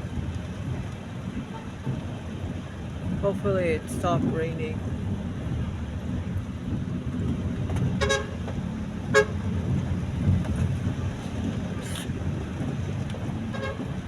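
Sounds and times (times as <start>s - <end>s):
car rumbling in traffic: 0.0s - 14.0s
car horn toots: 8.0s - 8.4s, 9.1s - 9.4s, 13.5s - 13.9s.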